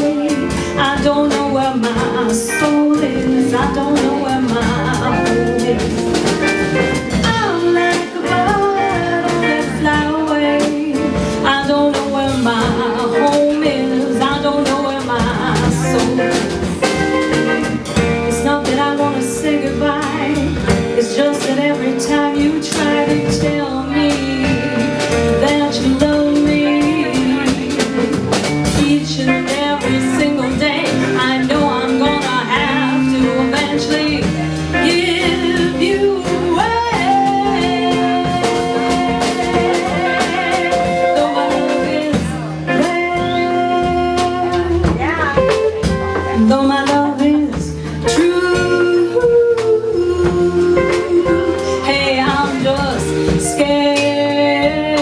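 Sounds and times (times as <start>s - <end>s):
live backing band: 0.0s - 55.0s
woman singing: 0.0s - 55.0s.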